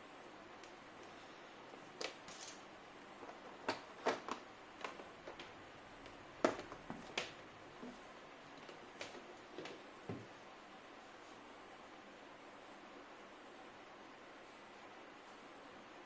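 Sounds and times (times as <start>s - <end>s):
hard objects clicking and knocking: 3.2s - 8.0s.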